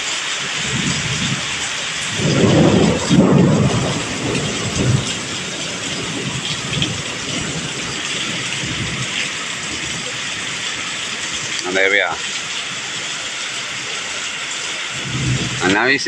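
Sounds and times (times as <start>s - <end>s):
rain falling steadily: 0.0s - 16.0s
thunder rumbling: 0.4s - 16.0s.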